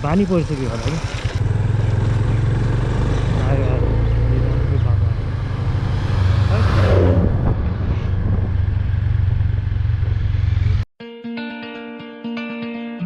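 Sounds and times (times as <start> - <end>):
motorcycle engine: 0.0 - 10.9
wind rumble on microphone: 4.8 - 10.8
plucked guitar music: 11.0 - 13.0.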